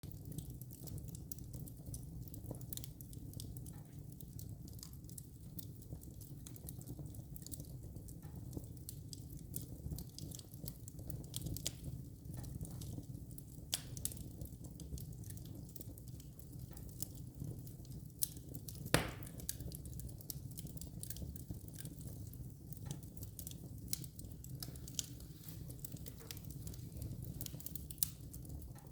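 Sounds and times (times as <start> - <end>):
fire low rumble: 0.0 - 28.9
wood fire crackling: 0.0 - 28.9
loud fire pop: 18.9 - 19.4.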